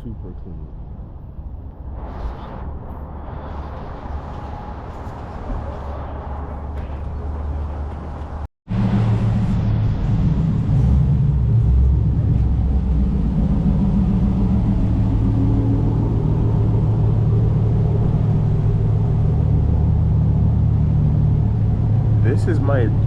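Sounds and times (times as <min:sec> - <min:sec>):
car engine idling: 0:03.6 - 0:23.0.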